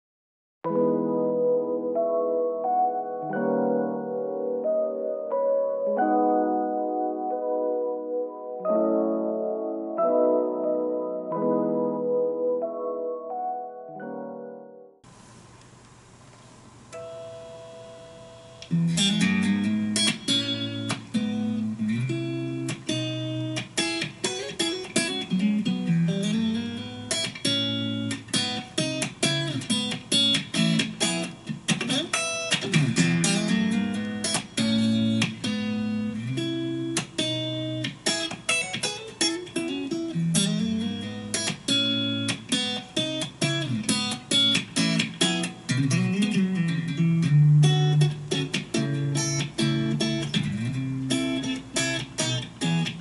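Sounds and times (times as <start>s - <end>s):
electric guitar funk rhythm: 18.6s - 53.0s.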